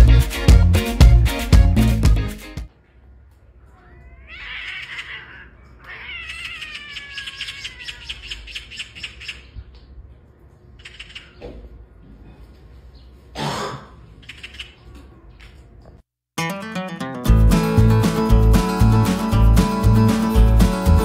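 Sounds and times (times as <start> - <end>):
magpies rattling alarm chatter: 3.8 - 9.7, 10.8 - 11.6, 14.2 - 15.0
harsh magpie squawk: 4.2 - 9.6, 10.8 - 11.4, 14.2 - 14.9.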